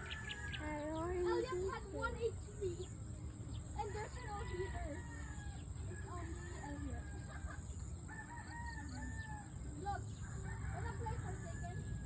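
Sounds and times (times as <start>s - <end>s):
rooster crowing: 0.0s - 0.7s, 4.0s - 9.6s, 10.2s - 12.0s.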